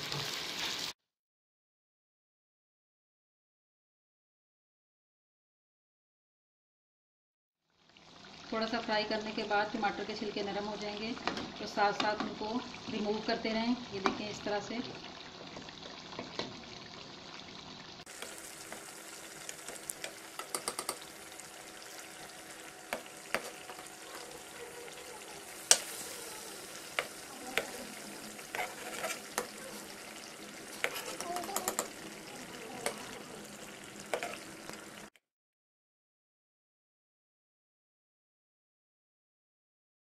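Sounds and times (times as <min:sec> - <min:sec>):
metal spatula scraping pan: 0:00.0 - 0:00.9, 0:18.2 - 0:32.1, 0:32.8 - 0:34.8
food sizzling in oil: 0:00.0 - 0:01.0, 0:07.7 - 0:35.2.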